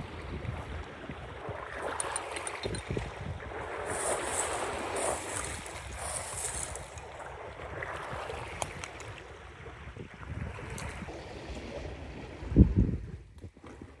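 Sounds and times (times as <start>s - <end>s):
lapping lake water: 0.0s - 14.0s
wind buffeting microphone: 0.0s - 14.0s
rushing hiss: 3.9s - 7.0s.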